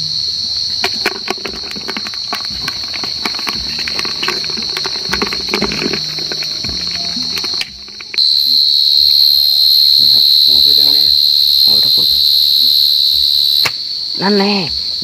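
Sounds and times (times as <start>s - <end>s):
cricket trilling: 0.0s - 15.0s
close crackling and rustling: 0.8s - 8.3s.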